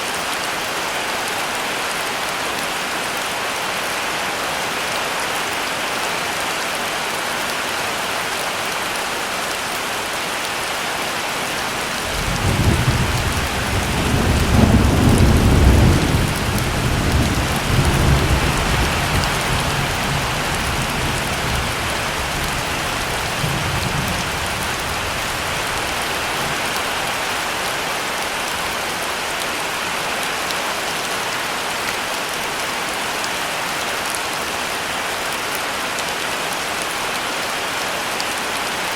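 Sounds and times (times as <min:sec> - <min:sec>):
heavy rain: 0:00.0 - 0:38.9
low rumble of thunder: 0:12.0 - 0:26.0.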